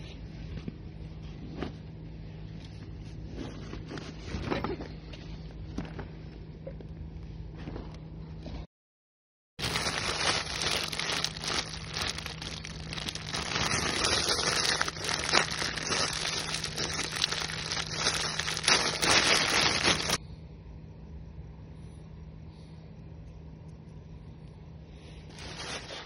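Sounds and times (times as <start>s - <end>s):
food wrapping crinkling: 9.6s - 20.2s, 25.3s - 26.0s.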